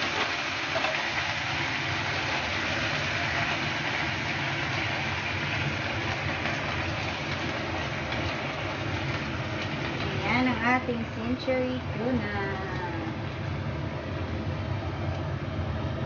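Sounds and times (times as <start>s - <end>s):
tuna sizzling in oil: 0.0s - 11.2s.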